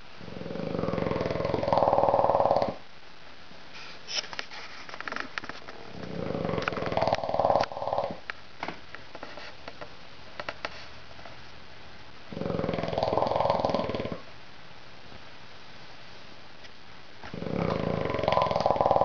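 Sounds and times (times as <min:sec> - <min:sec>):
dog snoring: 0:00.2 - 0:02.8, 0:05.8 - 0:08.2, 0:12.3 - 0:14.3, 0:17.3 - 0:19.0.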